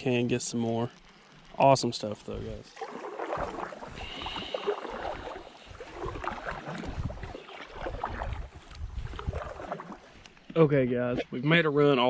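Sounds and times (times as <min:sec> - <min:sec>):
water splashing around kayak hull: 0:00.4 - 0:10.6
wind buffeting microphone: 0:02.3 - 0:10.2.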